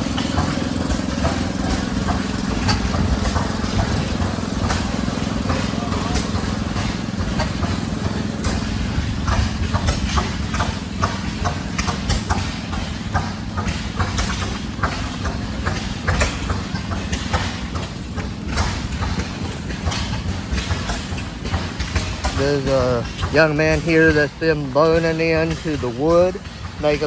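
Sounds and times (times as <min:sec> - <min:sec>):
engine humming: 0:00.0 - 0:27.0
sharp clicks and knocks: 0:00.0 - 0:27.0.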